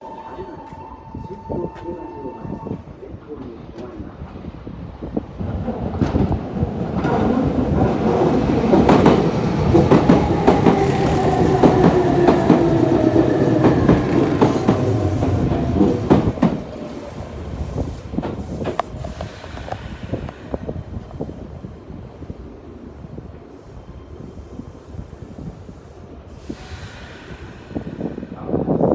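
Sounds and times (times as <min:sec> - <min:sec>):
train wheels clattering: 0:05.5 - 0:20.7.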